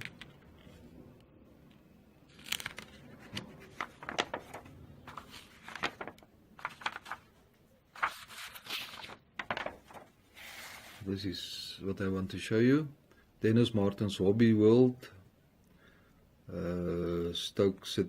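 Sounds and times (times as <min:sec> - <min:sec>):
book pages rustling and turning: 0:00.0 - 0:01.0, 0:02.3 - 0:11.0.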